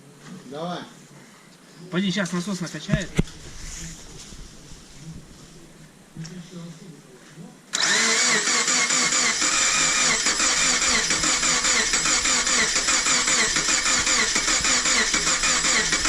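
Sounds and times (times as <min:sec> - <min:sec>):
engine cranking without starting: 0:07.8 - 0:16.0.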